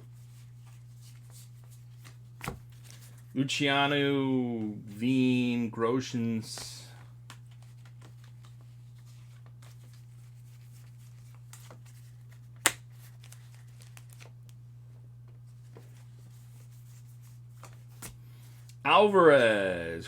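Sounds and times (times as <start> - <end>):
low electrical hum: 0.0 - 20.0
cards rustling in hands: 0.1 - 3.4, 6.5 - 14.6, 15.3 - 18.8
sharp card snap: 12.6 - 12.8.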